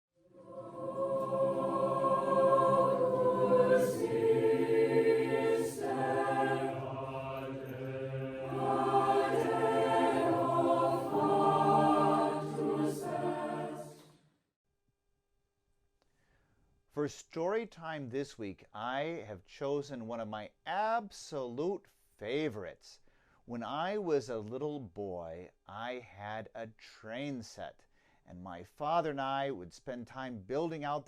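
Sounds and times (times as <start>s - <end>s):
choir singing held notes: 0.2s - 14.2s.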